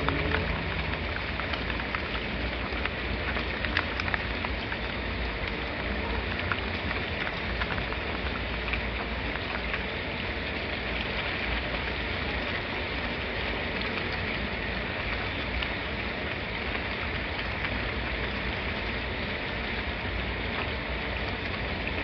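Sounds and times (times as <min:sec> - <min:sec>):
drops ticking: 0:00.0 - 0:05.6
steady rain hiss: 0:00.0 - 0:22.0.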